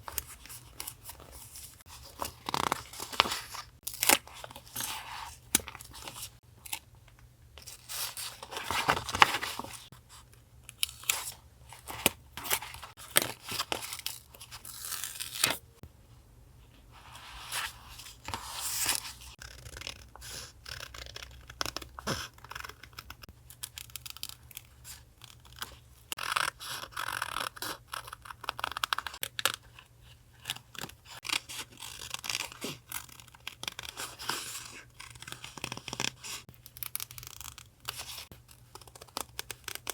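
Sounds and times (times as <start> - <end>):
paper rustling: 7.7 - 9.9.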